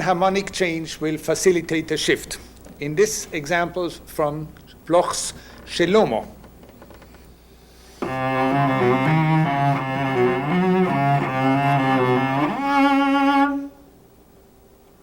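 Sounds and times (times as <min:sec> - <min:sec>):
solo cello playing: 0:08.0 - 0:13.9.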